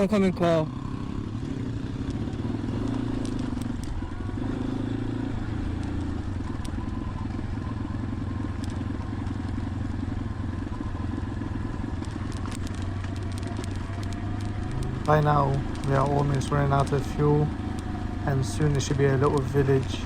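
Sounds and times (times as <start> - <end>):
motorcycle engine idling: 0.0 - 20.0
sharp clicks: 12.0 - 20.0.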